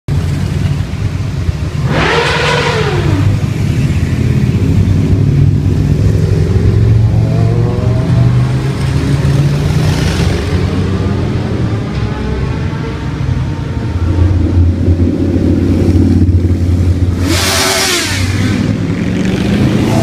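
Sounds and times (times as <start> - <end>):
motorcycle revving: 0.1 - 20.0
motorcycles rumbling: 0.1 - 20.0.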